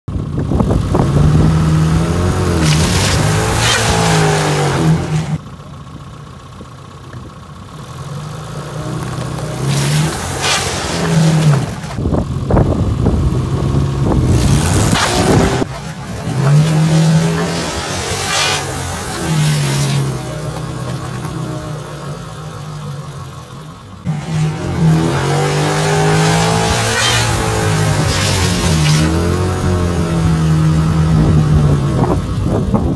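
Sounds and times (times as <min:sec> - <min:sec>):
car engine revving: 0:00.2 - 0:05.8, 0:07.8 - 0:32.9.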